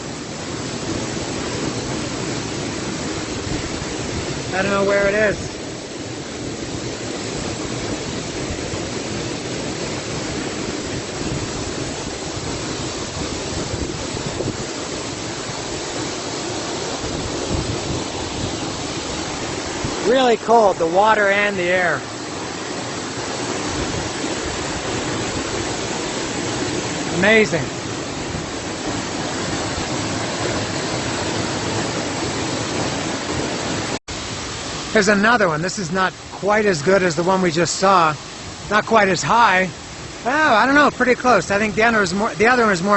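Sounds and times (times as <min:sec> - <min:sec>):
waterfall rushing: 0:00.0 - 0:42.9.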